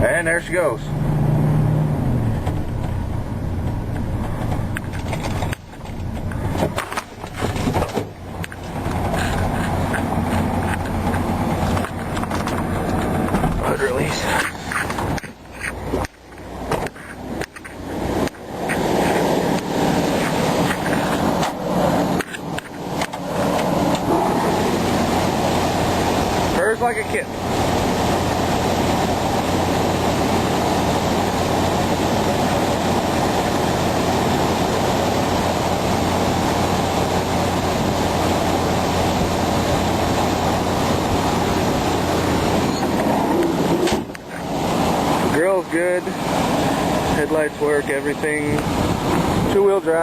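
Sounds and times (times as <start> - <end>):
truck engine running: 0.0 - 50.0.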